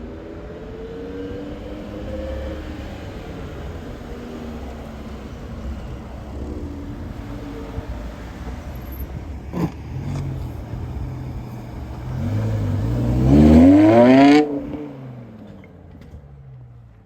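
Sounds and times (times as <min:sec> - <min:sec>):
car engine revving: 0:00.9 - 0:15.5.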